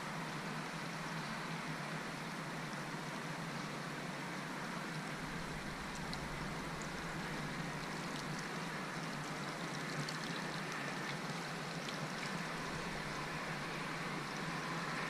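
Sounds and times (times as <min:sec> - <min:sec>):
low boat engine hum: 0:00.0 - 0:15.0
water rushing along boat hull: 0:01.5 - 0:15.0
faint splashes: 0:05.2 - 0:15.0.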